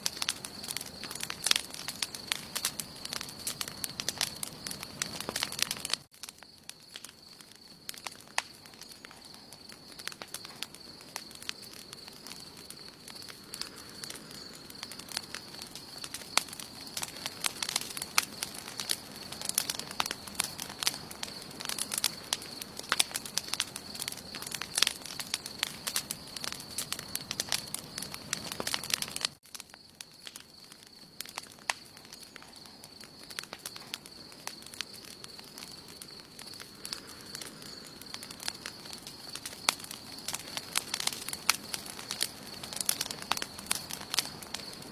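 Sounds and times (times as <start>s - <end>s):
campfire crackling and popping: 0.0s - 44.9s
soft hiss of flame: 36.0s - 44.8s.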